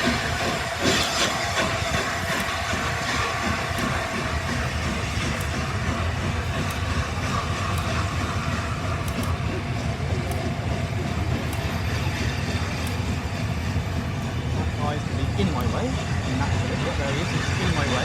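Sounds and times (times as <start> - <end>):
train low rumble: 0.0 - 18.0
faint ticks: 0.9 - 12.0.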